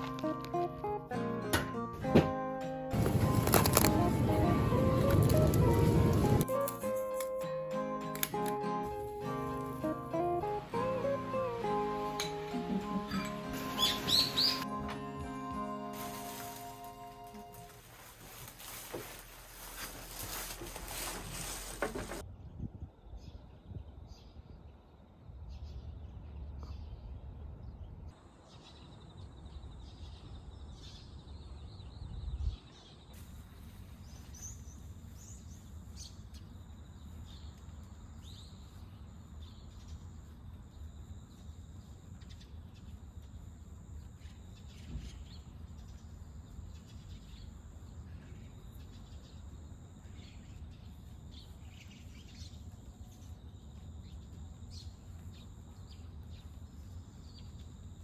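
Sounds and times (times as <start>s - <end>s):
small birds chirping: 11.0s - 14.7s.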